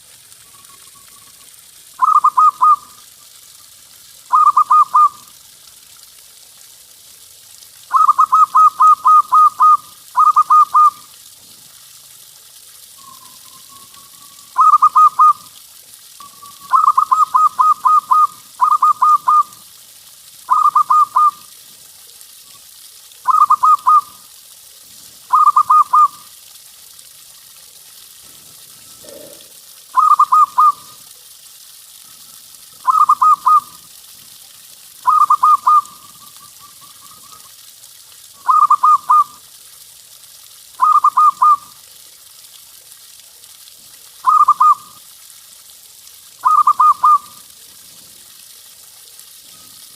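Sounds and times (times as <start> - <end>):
faint steady hiss: 0.0 - 49.9
dove cooing: 2.0 - 2.8, 4.3 - 5.2, 7.9 - 11.0, 14.6 - 15.4, 16.2 - 19.6, 20.5 - 21.4, 23.3 - 24.1, 25.3 - 26.2, 28.8 - 30.9, 32.9 - 33.8, 38.4 - 39.3, 46.4 - 47.3.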